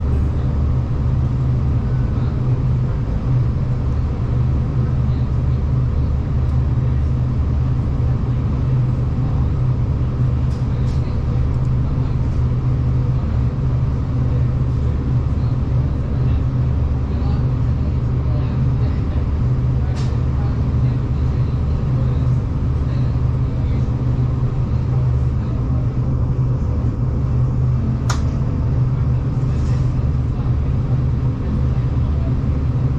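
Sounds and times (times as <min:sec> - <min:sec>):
diesel train rumble: 0:00.0 - 0:32.9.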